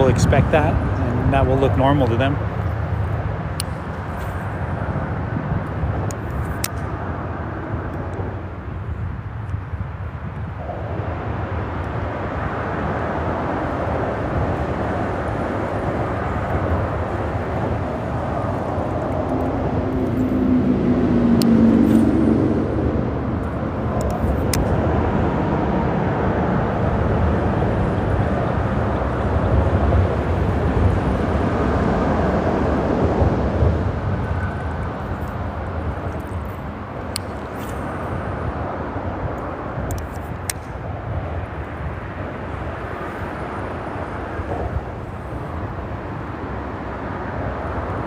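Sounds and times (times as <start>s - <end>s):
freeway traffic rumble: 0.0s - 48.0s
loud vehicle passing: 9.9s - 48.0s.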